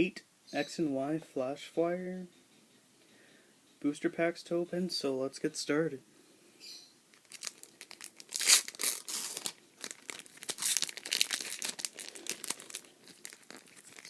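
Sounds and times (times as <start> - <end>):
foil wrapper crinkling and tearing: 7.1 - 14.0.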